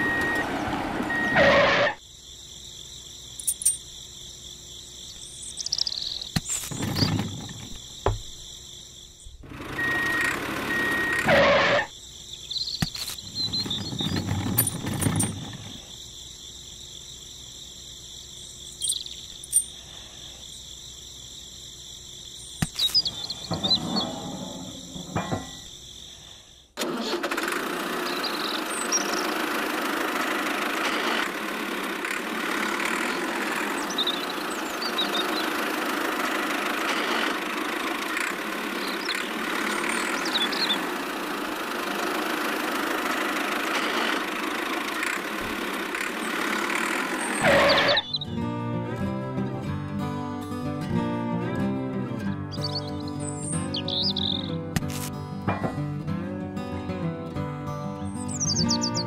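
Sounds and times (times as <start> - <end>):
toy tractor motor running: 9.4 - 11.9, 26.8 - 48.2.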